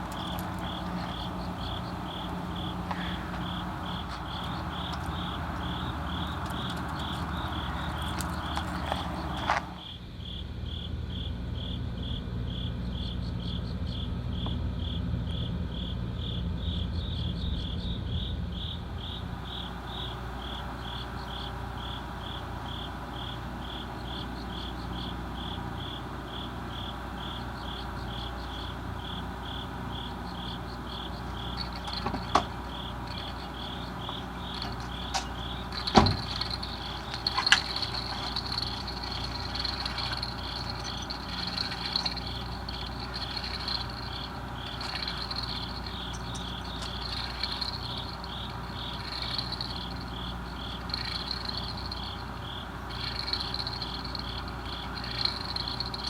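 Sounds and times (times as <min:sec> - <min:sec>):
cricket chirping: 0:00.0 - 0:56.0
low steady rumble: 0:00.0 - 0:56.0
sharp knocks: 0:34.1 - 0:37.9.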